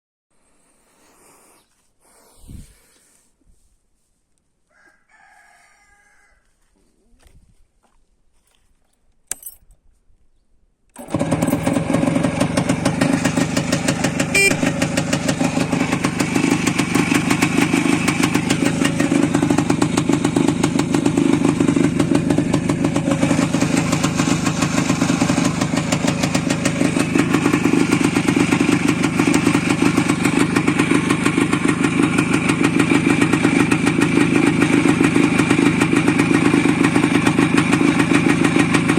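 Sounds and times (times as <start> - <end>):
motorcycle engine starting and idling: 10.9 - 38.9.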